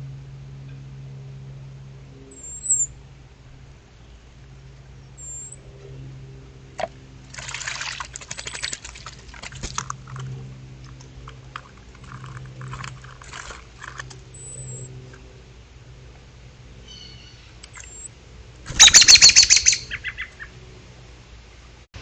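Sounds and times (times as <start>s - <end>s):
water splashing in a bowl: 6.8s - 14.0s.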